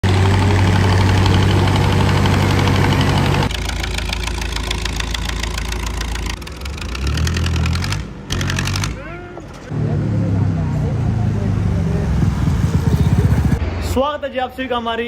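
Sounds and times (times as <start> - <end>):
loud tractor diesel engine: 0.0 - 8.0, 9.8 - 13.9
engine with fast even beat: 11.4 - 13.7.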